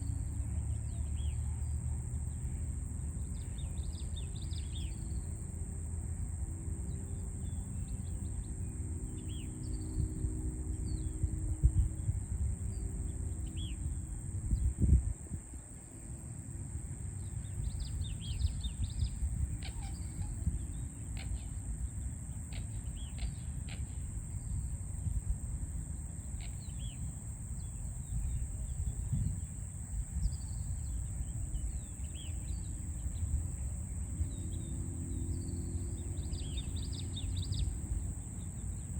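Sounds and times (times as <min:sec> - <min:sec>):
low rumble of city traffic: 0:00.0 - 0:38.9.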